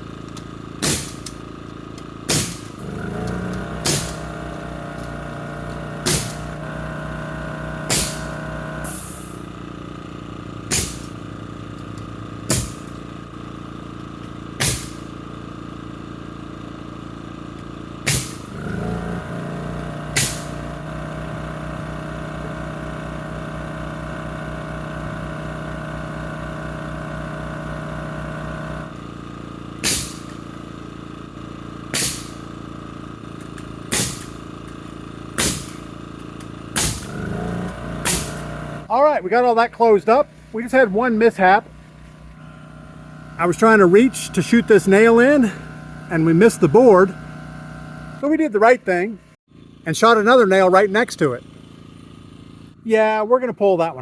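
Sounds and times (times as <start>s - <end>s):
air compressor humming: 0.0s - 52.9s
nail gun firing: 0.7s - 5.1s, 5.7s - 6.6s, 7.8s - 9.4s, 10.7s - 11.3s, 12.4s - 13.1s, 14.5s - 15.2s, 18.0s - 18.9s, 20.0s - 20.7s, 29.8s - 30.5s, 31.8s - 32.6s, 33.4s - 38.6s.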